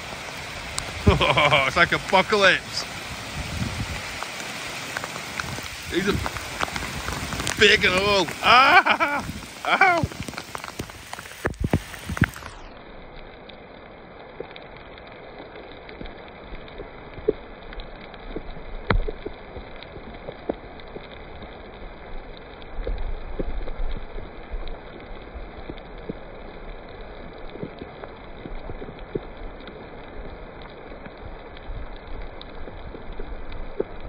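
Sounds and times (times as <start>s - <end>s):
hailstones striking: 0.0s - 12.8s
hail hissing: 0.0s - 34.0s.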